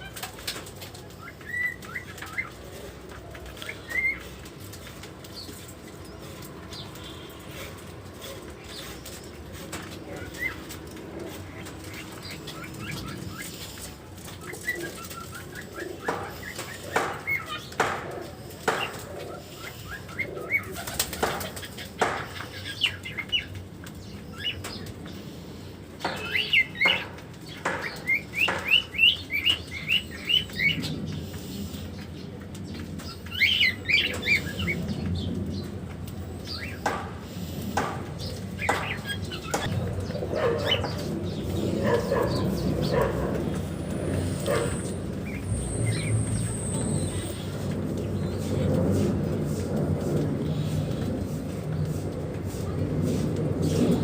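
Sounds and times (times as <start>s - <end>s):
wings flapping: 0.0s - 25.2s
birds chirping: 0.0s - 54.0s.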